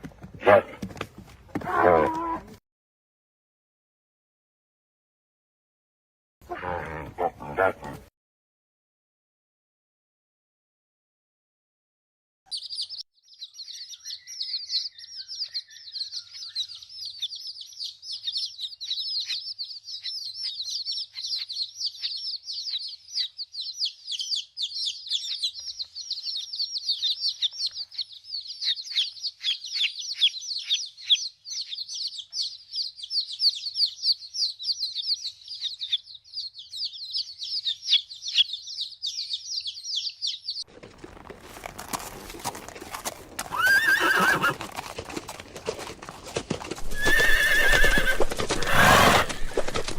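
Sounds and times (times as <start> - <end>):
small birds chirping: 12.5 - 41.5, 42.1 - 46.2.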